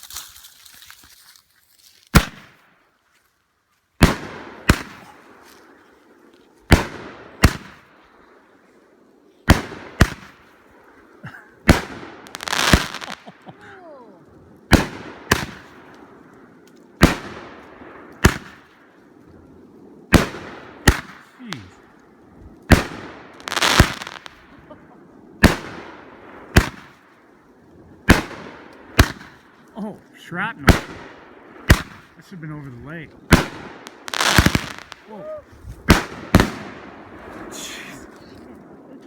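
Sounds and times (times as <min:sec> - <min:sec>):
firework bangs: 0:02.1 - 0:02.6, 0:04.0 - 0:05.8, 0:06.7 - 0:08.0, 0:09.4 - 0:13.6, 0:14.7 - 0:16.2, 0:17.0 - 0:18.9, 0:20.1 - 0:27.3, 0:28.0 - 0:29.6, 0:30.4 - 0:38.9
firework crackling burst: 0:04.0 - 0:05.8, 0:06.7 - 0:08.0, 0:09.4 - 0:13.9, 0:14.6 - 0:16.2, 0:17.0 - 0:18.9, 0:20.1 - 0:27.2, 0:27.9 - 0:29.6, 0:30.4 - 0:39.0.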